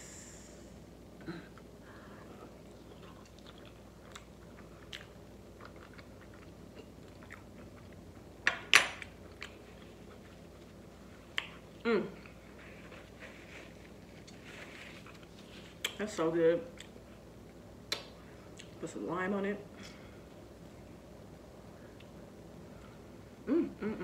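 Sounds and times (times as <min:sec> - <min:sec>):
person chewing food: 0:02.5 - 0:08.3.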